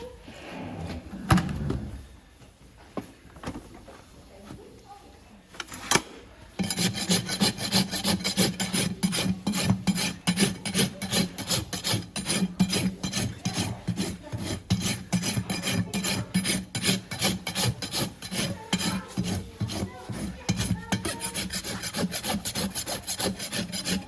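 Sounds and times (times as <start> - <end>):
hoof rasp scraping a hoof: 6.6 - 24.0.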